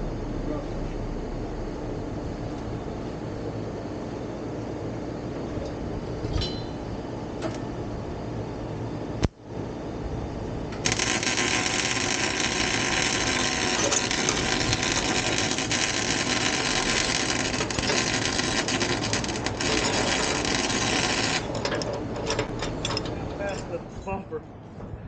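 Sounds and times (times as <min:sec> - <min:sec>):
welder crackling hiss: 0:10.8 - 0:21.5.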